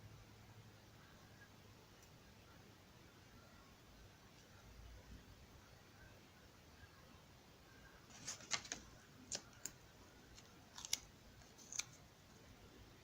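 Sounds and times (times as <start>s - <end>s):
packaging crinkling and clicking: 8.1s - 12.0s.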